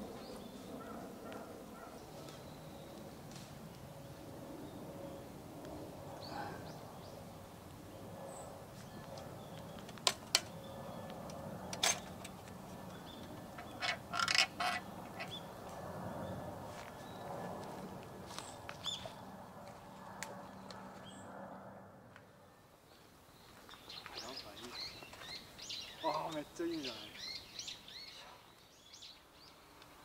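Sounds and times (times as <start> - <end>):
lantern metal clicks: 11.3 - 12.6, 13.4 - 15.3
lantern clattering: 13.4 - 15.3.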